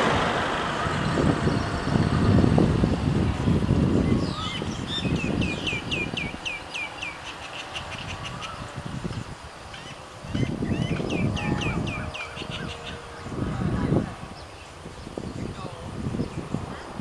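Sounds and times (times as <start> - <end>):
low rumble: 0.0 - 5.1.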